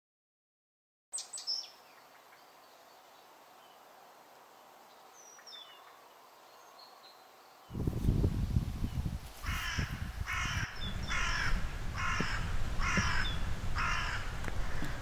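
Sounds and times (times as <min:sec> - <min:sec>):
bird cawing: 0:09.4 - 0:15.0.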